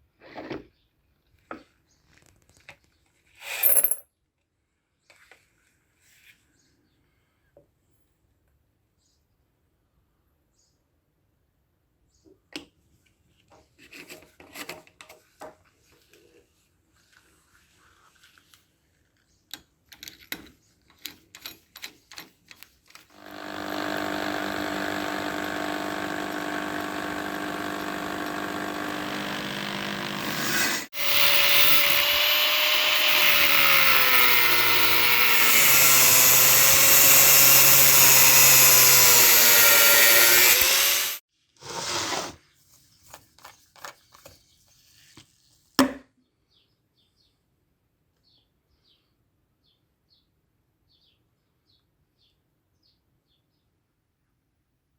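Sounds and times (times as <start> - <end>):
small metal parts clicking: 19.5 - 23.1, 31.0 - 35.4
power tool cleaning metal: 23.1 - 41.2
power tool cutting metal: 23.1 - 41.2.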